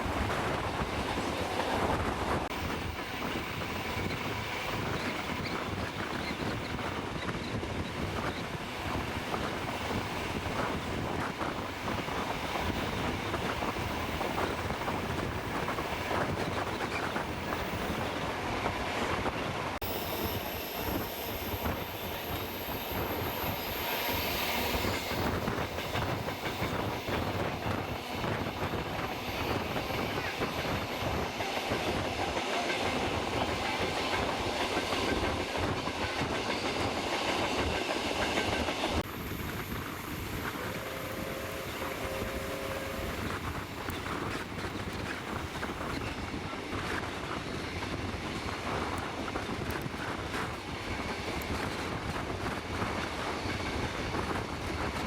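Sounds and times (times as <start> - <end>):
steam train rumbling: 0.0 - 55.0
high steam hiss: 19.8 - 46.5.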